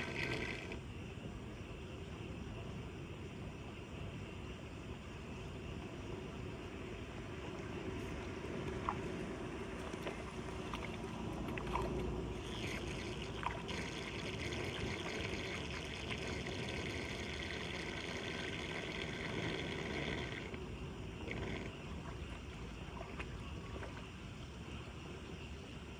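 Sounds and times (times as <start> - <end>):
water pouring into storm drain: 9.9 - 20.5.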